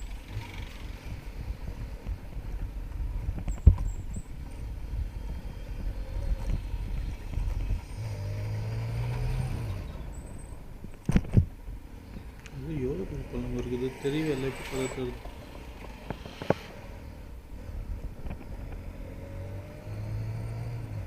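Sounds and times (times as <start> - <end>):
traffic and wind rumble: 0.0 - 21.0.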